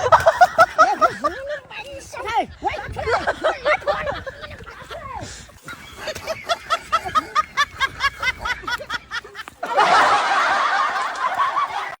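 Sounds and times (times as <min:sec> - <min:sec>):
laugh track: 0:00.0 - 0:12.0
person laughing: 0:03.3 - 0:12.0.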